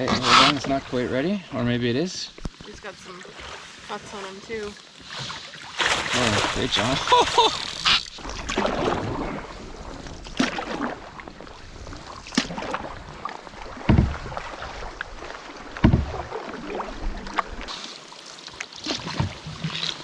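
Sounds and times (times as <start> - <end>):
water lapping against canoe: 0.0 - 20.0
dull thumps on hull: 13.6 - 14.4, 15.7 - 16.4.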